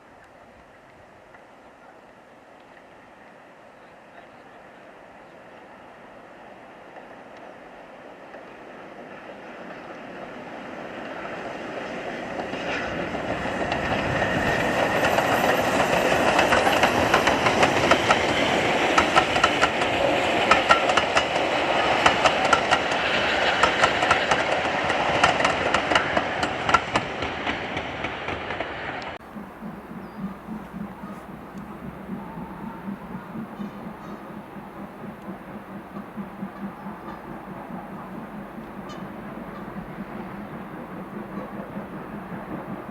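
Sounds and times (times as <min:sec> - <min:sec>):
steam train passing: 0:00.0 - 0:42.9
wheels clicking over rail joints: 0:11.0 - 0:42.9.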